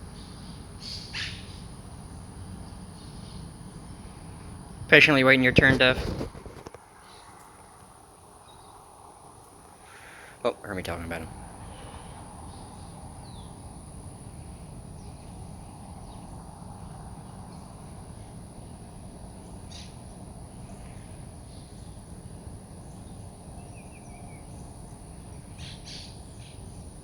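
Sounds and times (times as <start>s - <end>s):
faint bird chirps: 0.1s - 1.7s.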